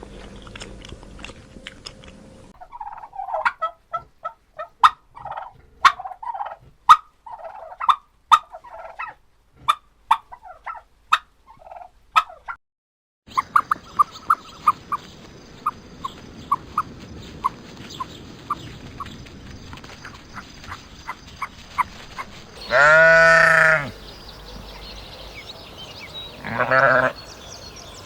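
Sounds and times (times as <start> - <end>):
goat or sheep bleating: 22.6 - 24.0, 26.4 - 27.2.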